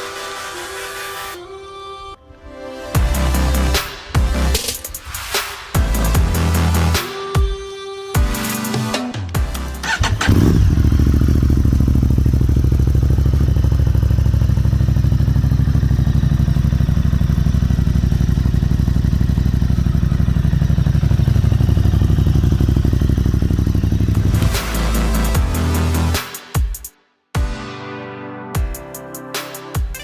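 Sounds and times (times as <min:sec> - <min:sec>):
motorcycle engine idling: 0:09.4 - 0:25.9.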